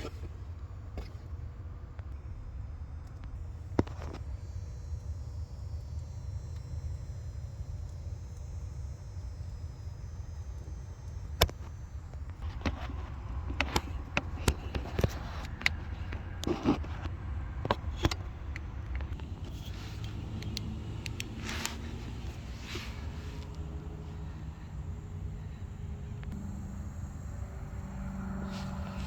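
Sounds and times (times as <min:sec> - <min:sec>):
car engine idling: 0:17.1 - 0:29.0.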